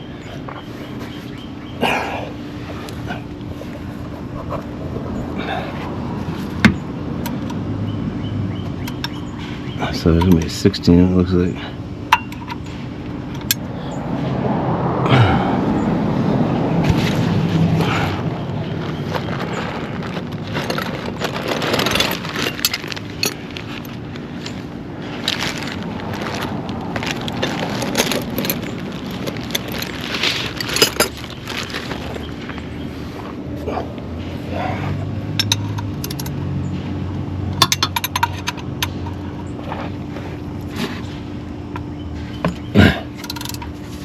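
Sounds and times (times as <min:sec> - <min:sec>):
low steady hum: 0:00.0 - 0:44.0
metal tools clinking: 0:12.1 - 0:12.7, 0:19.1 - 0:24.6, 0:25.2 - 0:32.5, 0:35.3 - 0:36.4, 0:37.6 - 0:39.9, 0:42.4 - 0:44.0
metal hand tools clinking: 0:27.1 - 0:31.4, 0:35.3 - 0:36.4, 0:37.6 - 0:39.2, 0:43.2 - 0:43.7.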